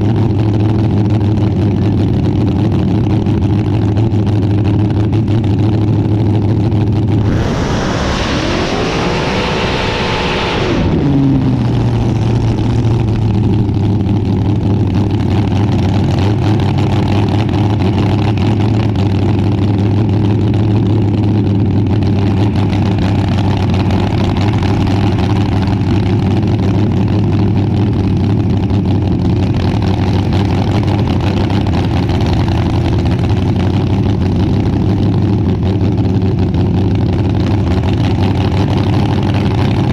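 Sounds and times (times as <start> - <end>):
dragster engine idling and revving: 0.0 - 39.9.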